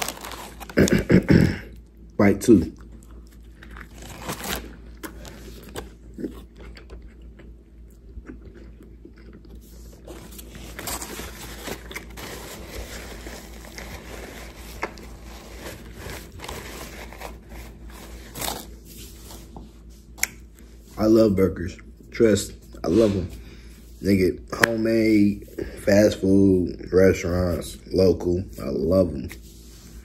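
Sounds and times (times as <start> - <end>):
paper napkin rustling: 0.0 - 1.1, 9.8 - 21.0
person chewing: 2.7 - 18.8.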